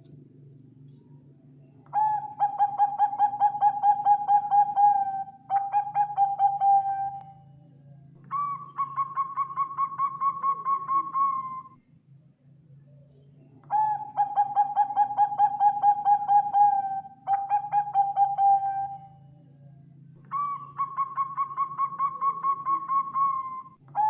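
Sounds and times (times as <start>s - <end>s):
dove cooing: 1.9s - 7.4s, 8.2s - 11.8s, 13.7s - 19.2s, 20.3s - 24.0s.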